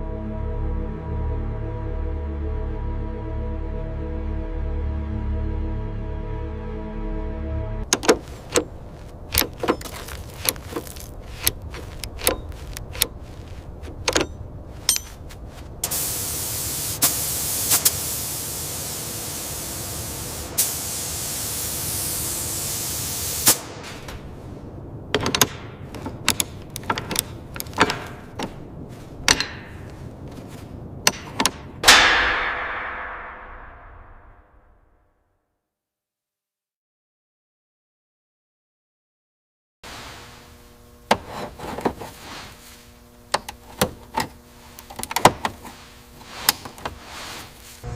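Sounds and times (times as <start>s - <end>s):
metal taps and clanks: 7.9s - 8.7s, 9.3s - 13.2s, 13.8s - 15.3s, 25.1s - 28.6s, 29.2s - 29.9s, 31.0s - 31.7s
steady hiss: 15.3s - 25.0s, 39.9s - 47.9s.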